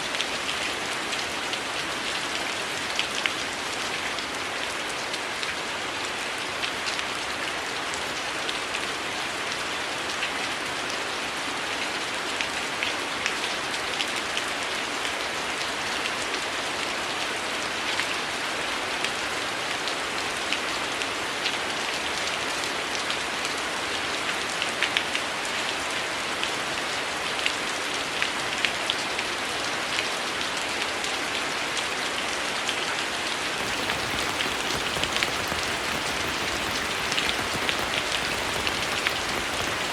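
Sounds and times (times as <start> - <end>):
heavy rain: 0.0 - 12.7, 33.6 - 39.9
drops pattering: 33.6 - 39.9.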